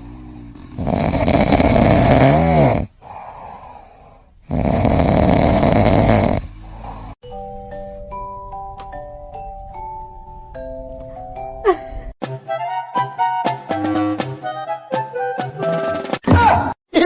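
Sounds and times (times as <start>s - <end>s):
loud snoring: 0.0s - 7.2s
person breathing: 2.9s - 4.5s, 6.0s - 7.2s.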